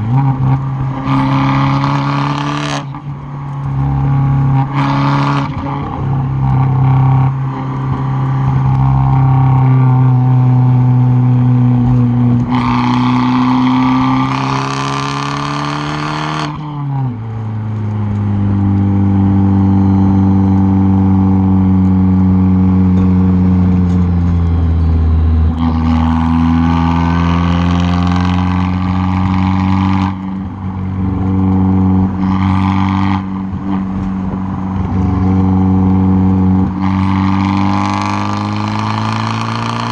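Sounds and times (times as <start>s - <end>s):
car exhaust under throttle: 0.0s - 39.9s.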